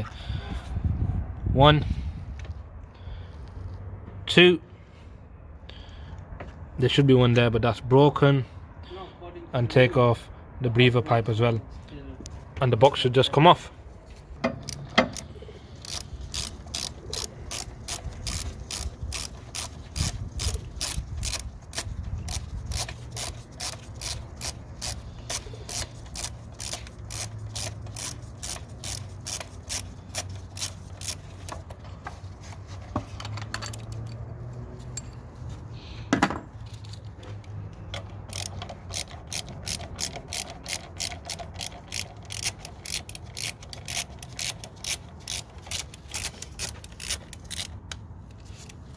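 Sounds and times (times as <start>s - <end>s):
ratchet clicking: 14.5s - 31.8s, 38.0s - 48.8s.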